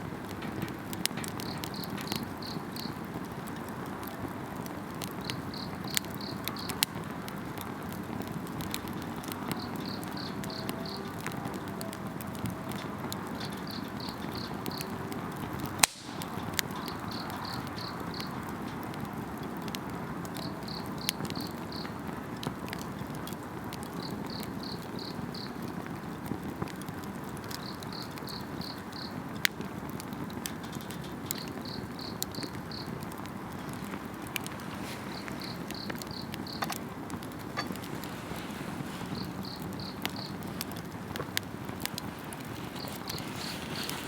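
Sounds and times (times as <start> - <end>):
campfire crackling and popping: 0.0 - 44.0
insects chirping in trills: 33.6 - 36.8, 37.6 - 40.7.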